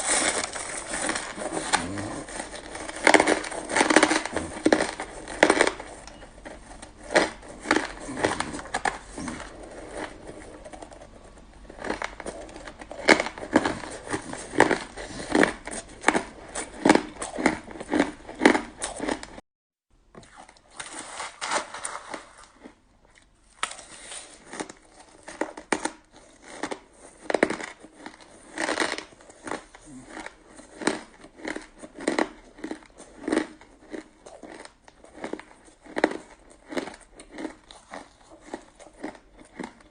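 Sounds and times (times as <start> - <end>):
shaved ice crunching: 0.0 - 6.2.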